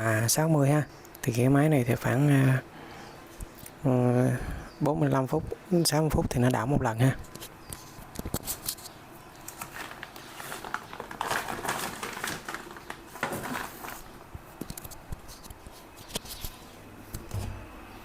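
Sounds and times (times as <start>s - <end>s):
rustling and crinkling: 7.1s - 17.7s.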